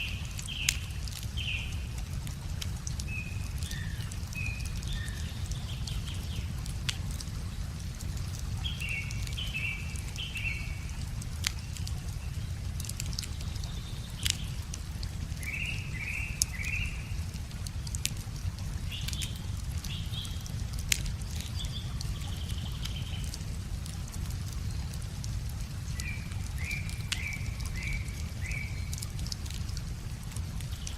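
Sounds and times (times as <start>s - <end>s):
songbird singing: 0.0s - 2.0s, 2.9s - 6.6s, 8.6s - 14.7s, 15.4s - 17.3s, 25.8s - 29.3s
wood fire crackling and popping: 0.0s - 30.9s.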